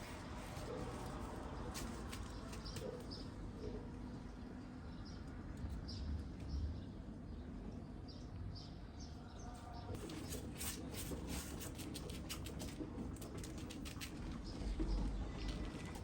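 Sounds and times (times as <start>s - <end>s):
small clicks and rustles: 0.0s - 3.2s, 10.0s - 16.0s.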